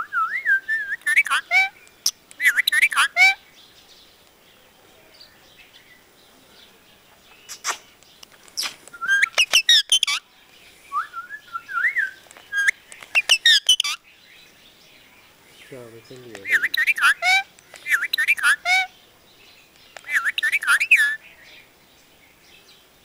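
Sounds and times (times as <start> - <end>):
parrot chirping: 0.9 - 3.4, 8.6 - 10.2, 12.5 - 14.0, 16.4 - 18.9, 20.0 - 21.2.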